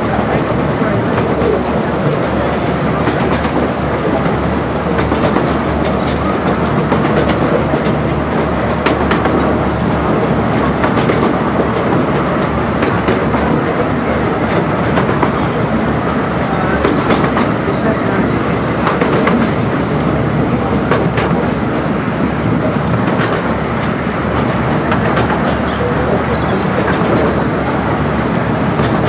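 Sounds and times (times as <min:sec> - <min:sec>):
railway wheels rumbling: 0:00.0 - 0:29.0.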